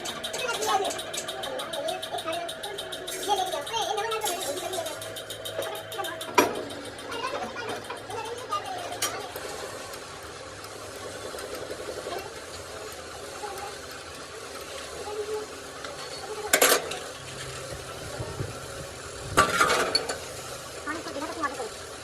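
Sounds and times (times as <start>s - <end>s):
metal tools clanking: 0.0s - 9.2s
low workshop background: 0.0s - 22.0s.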